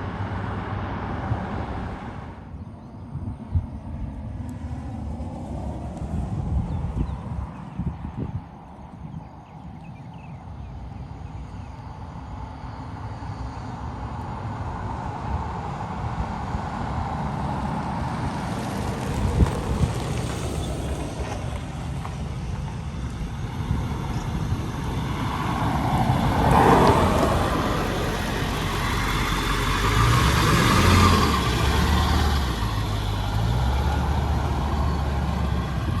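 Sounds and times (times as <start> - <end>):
diesel truck engine running: 16.4 - 36.0.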